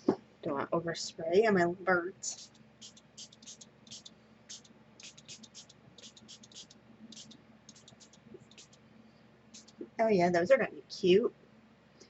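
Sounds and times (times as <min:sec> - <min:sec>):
spray bottle hissing: 0:02.3 - 0:08.8, 0:09.6 - 0:09.8.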